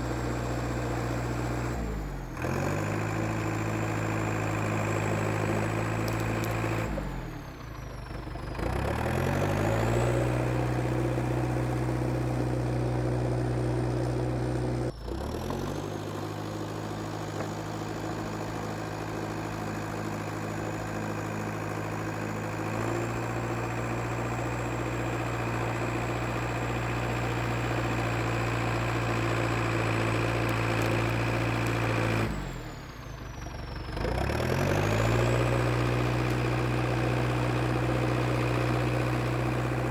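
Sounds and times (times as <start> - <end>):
bulldozer diesel engine running: 0.0 - 39.9
high engine whine: 0.0 - 39.9.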